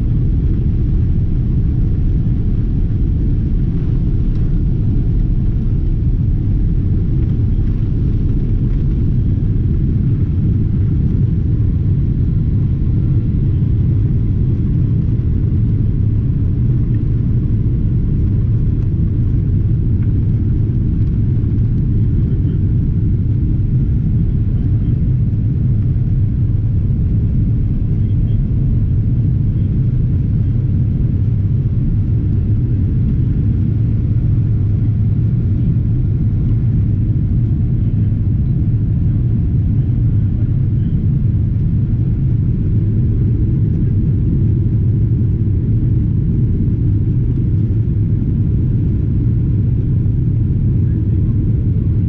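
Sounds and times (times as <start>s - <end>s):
jet engines rumbling in cabin: 0.0s - 52.0s.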